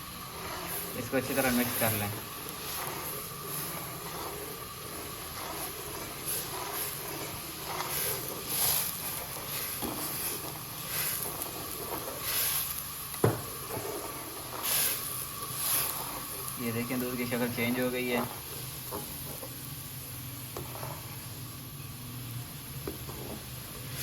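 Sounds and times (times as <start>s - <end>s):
hot milk hissing in pan: 0.0s - 24.0s
spoon scraping: 0.3s - 12.8s.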